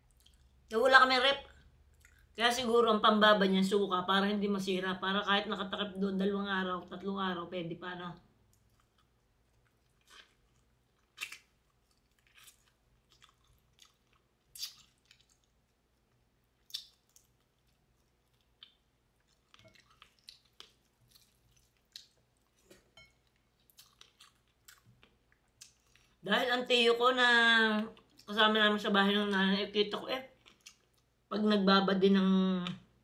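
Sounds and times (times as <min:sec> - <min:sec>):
chewing and crunching: 0:00.0 - 0:00.7, 0:08.5 - 0:26.2.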